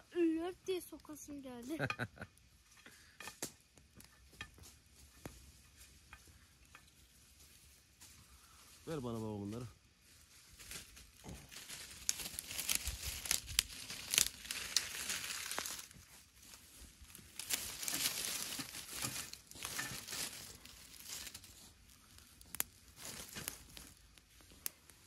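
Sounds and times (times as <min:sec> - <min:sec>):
plastic packaging crinkling: 0:10.8 - 0:16.0, 0:17.1 - 0:24.2.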